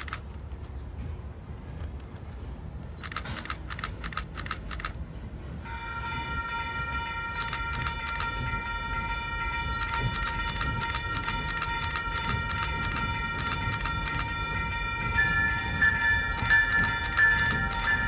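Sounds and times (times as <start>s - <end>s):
wheels clicking over rail joints: 0.0s - 5.0s, 9.7s - 14.5s, 15.2s - 18.0s
train rumbling by: 0.0s - 18.0s.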